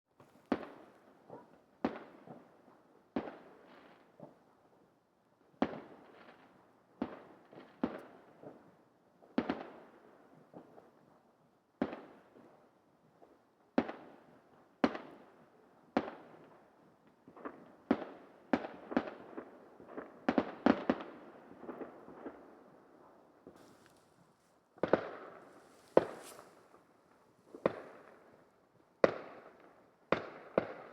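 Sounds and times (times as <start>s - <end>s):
fireworks exploding: 24.8s - 26.6s.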